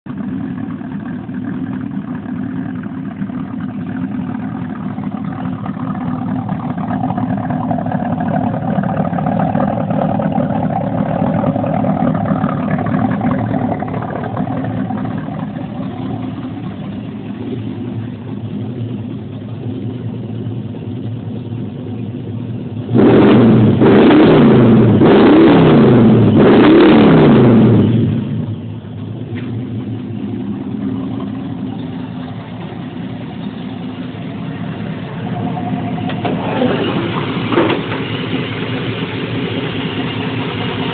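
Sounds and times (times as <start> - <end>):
car engine idling: 0.0 - 40.9
car engine revving hard: 22.9 - 28.4.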